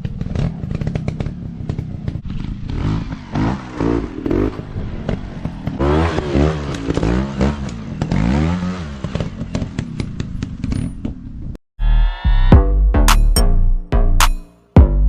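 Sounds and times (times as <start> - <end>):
dirt bike engines revving: 0.0 - 10.1.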